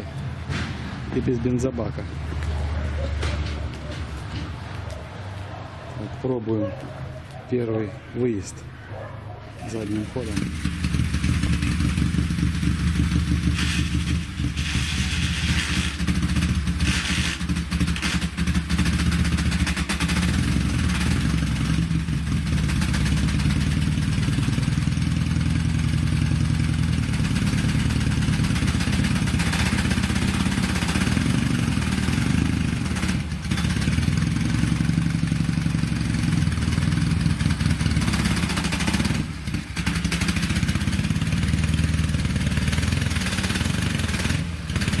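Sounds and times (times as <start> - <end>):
motorcycle engine running: 9.6 - 45.0
rattling noise: 9.7 - 20.0.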